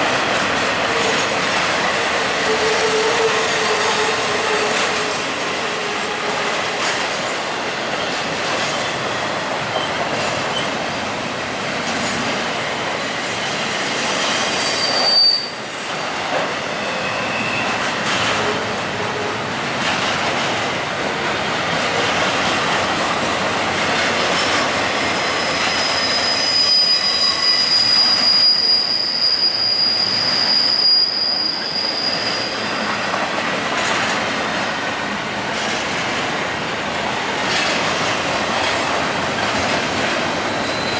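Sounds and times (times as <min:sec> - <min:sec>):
train wheels clattering on rail: 0:00.0 - 0:40.9
high-pitched wheel squeal: 0:01.8 - 0:05.4, 0:13.3 - 0:16.0, 0:25.2 - 0:33.0, 0:40.5 - 0:40.9.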